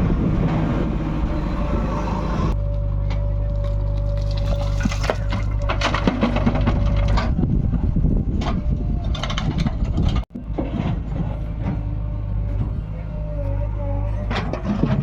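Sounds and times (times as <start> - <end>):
diesel engine running: 0.0 - 15.0
bucket clanking and scraping: 3.5 - 7.4, 14.2 - 15.0.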